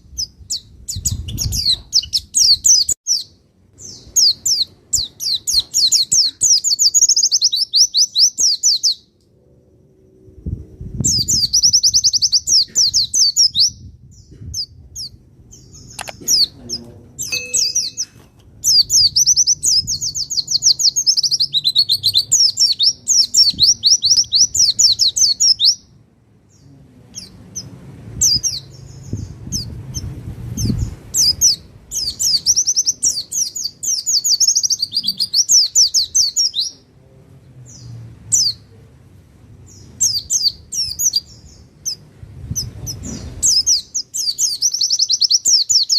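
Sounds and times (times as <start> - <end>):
bird chirping trills: 0.0 - 10.2, 11.0 - 36.8, 39.6 - 45.9
faint low hum: 9.1 - 11.6.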